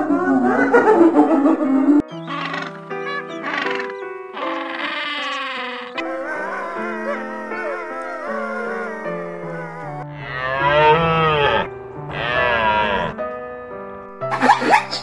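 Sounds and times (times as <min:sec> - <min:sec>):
background music: 0:00.0 - 0:15.0
deer stag calling: 0:02.2 - 0:13.2
wolves howling: 0:02.4 - 0:13.2.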